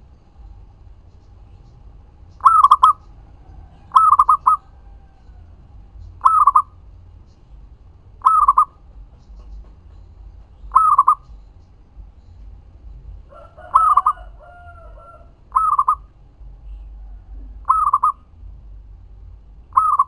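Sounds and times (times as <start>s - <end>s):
dove cooing: 2.3s - 6.8s, 8.2s - 8.8s, 10.6s - 11.4s, 13.3s - 18.3s, 19.7s - 20.0s.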